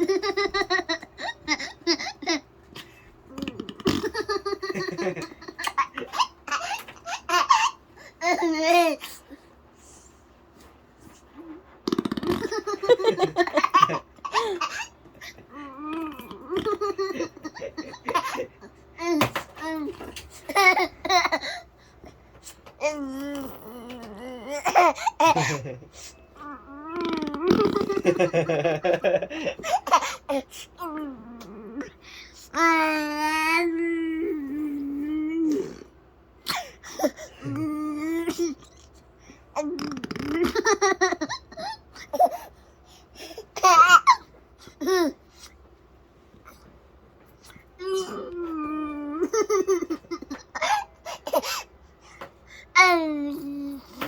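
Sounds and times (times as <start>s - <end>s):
baby laughing and babbling: 4.2s - 9.3s, 43.2s - 45.2s
mouth-made fart noises: 11.8s - 12.5s, 26.9s - 28.0s, 39.7s - 40.4s.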